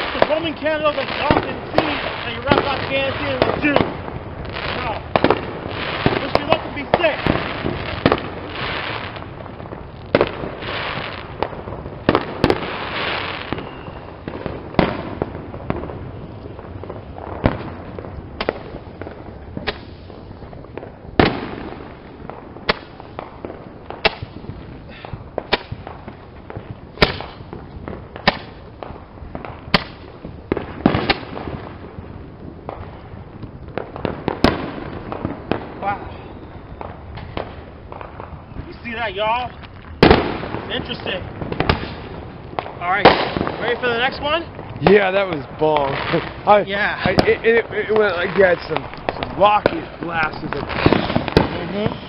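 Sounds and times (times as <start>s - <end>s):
fireworks crackling and fizzing: 0.0s - 52.0s
roman candle pops: 27.0s - 27.4s.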